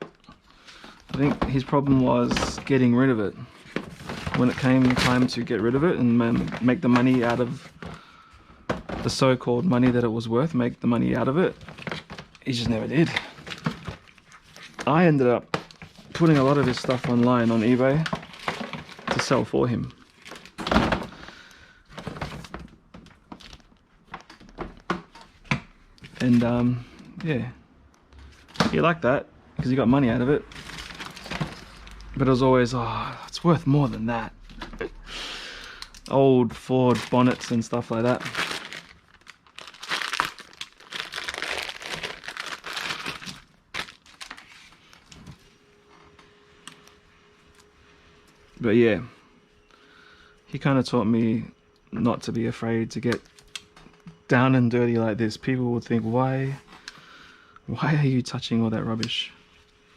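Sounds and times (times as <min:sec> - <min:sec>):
rubbish crinkling and rustling: 0:00.0 - 0:27.5, 0:28.2 - 0:33.0, 0:35.7 - 0:45.6
faint steady hum: 0:00.0 - 0:59.9
scrap items knocking and rustling: 0:08.6 - 0:09.2, 0:30.5 - 0:32.0.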